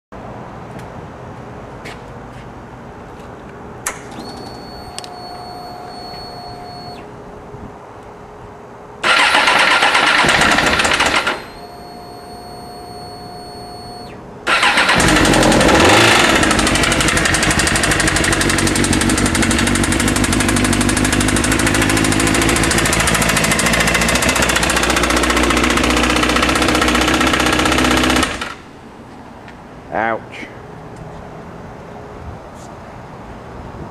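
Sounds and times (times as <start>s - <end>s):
high whine: 3.9s - 30.6s
motorcycle engine running: 9.0s - 11.6s, 14.6s - 28.6s
motorcycle engine cranking: 9.0s - 11.7s, 14.5s - 28.6s.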